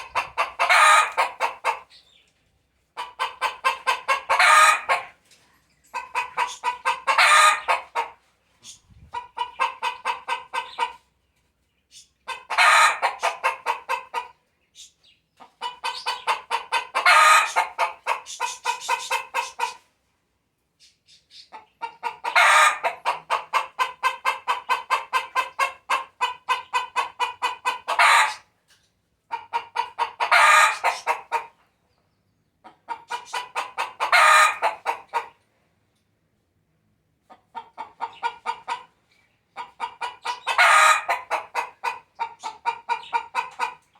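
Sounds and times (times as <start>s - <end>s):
hen cackling: 0.0s - 2.0s, 2.9s - 5.2s, 5.9s - 11.1s, 12.2s - 14.4s, 15.4s - 19.9s, 21.3s - 28.6s, 29.3s - 31.6s, 32.6s - 35.4s, 37.3s - 39.0s, 39.6s - 43.9s.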